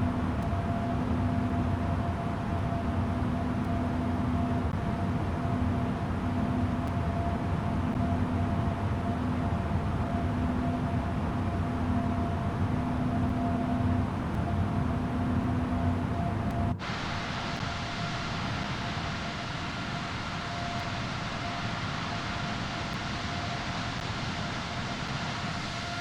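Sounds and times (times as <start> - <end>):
jet engines rumbling: 14.1 - 26.0.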